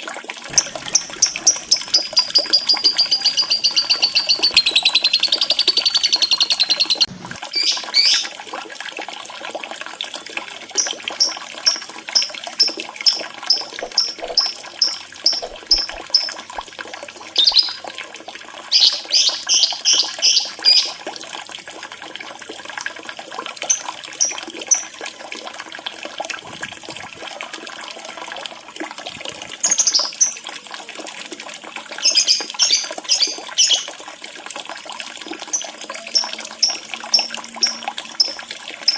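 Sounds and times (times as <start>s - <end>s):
trickle of running water: 0.0s - 38.9s
fast bird trill: 0.5s - 8.3s, 10.8s - 16.4s, 17.4s - 17.8s
lovebird chirps and calls: 0.5s - 8.3s, 10.8s - 16.4s, 17.4s - 17.8s, 18.7s - 21.0s, 29.6s - 30.4s, 32.0s - 33.9s, 35.5s - 38.9s.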